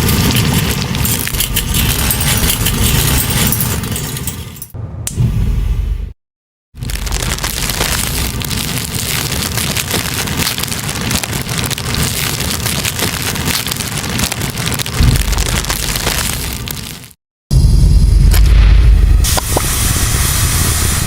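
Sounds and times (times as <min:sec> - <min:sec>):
steel wool burning crackling: 0:00.0 - 0:04.7, 0:06.8 - 0:17.2
low rumble: 0:00.0 - 0:06.2, 0:06.8 - 0:13.1, 0:14.6 - 0:16.9, 0:17.5 - 0:21.0.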